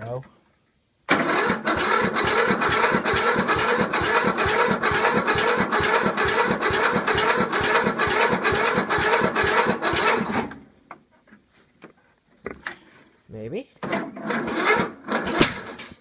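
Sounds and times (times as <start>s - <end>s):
engine cranking by electric starter: 1.1s - 10.6s, 13.8s - 16.0s.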